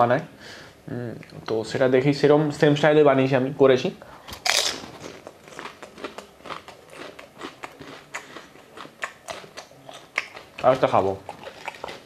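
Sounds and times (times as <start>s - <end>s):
chewing with small crunches: 4.3s - 12.0s
crisp shell crunching when bitten: 4.4s - 10.4s.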